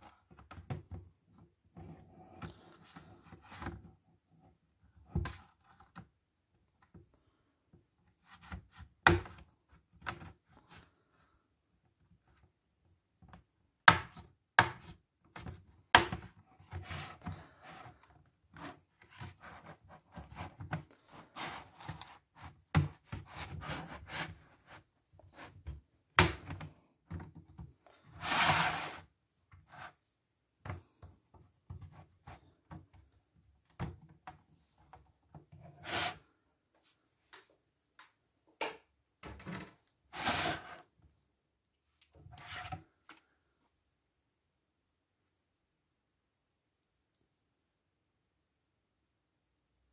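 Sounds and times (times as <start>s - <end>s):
rubbing and scraping: 16.6s - 25.7s, 27.8s - 29.1s, 35.6s - 36.3s, 40.1s - 40.9s.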